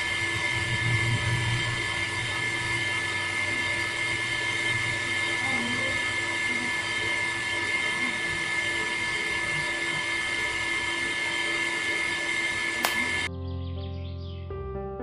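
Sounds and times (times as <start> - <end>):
small electric motor whining: 0.0 - 13.3
sharp click: 12.8 - 13.1.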